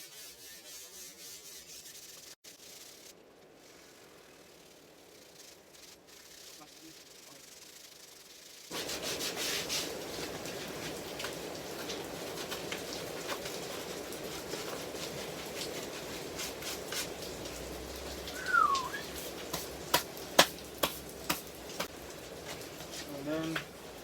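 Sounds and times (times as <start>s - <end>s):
sandpaper rubbing on wood: 0.0s - 17.3s
short falling chirp: 18.4s - 19.0s.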